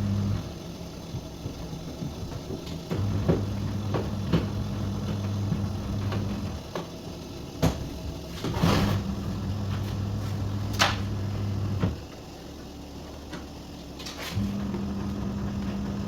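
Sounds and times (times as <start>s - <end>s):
washing machine motor humming: 0.0s - 16.0s.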